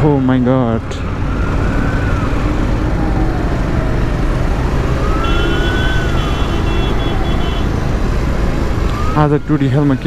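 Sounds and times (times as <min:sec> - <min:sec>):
road traffic: 0:00.0 - 0:10.0
wind rumble: 0:00.8 - 0:09.5
siren wailing: 0:01.0 - 0:10.0.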